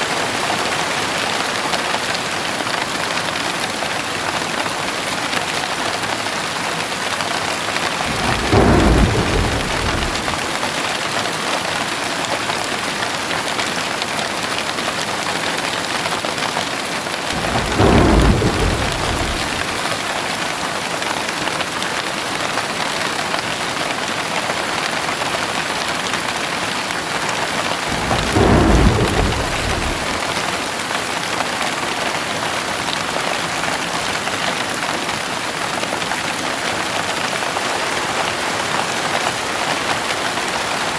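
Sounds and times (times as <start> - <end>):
heavy rain falling: 7.7 - 11.1, 17.3 - 20.9, 26.8 - 31.3
low thunder rolls: 8.0 - 10.9, 17.3 - 20.4, 27.8 - 30.9.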